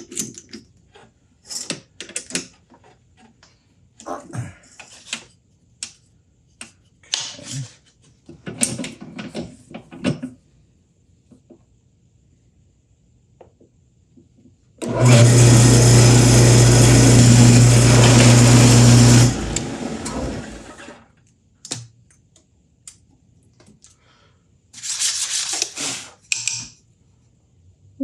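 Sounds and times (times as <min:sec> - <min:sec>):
power drill boring into wood: 0:14.8 - 0:21.0.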